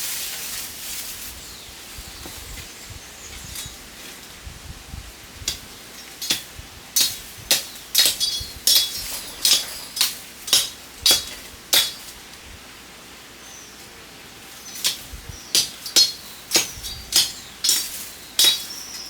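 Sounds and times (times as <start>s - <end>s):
hard objects clinking: 5.9s - 12.2s, 14.6s - 19.0s.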